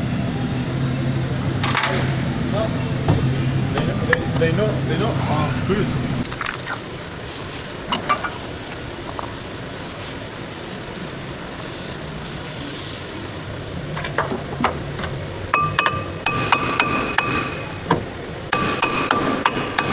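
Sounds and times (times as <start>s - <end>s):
metal part struck and ringing: 15.6s - 17.8s.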